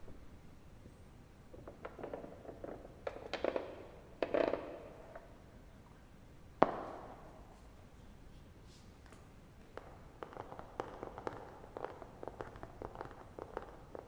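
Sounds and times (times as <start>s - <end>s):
sharp loud pop: 6.6s - 7.4s.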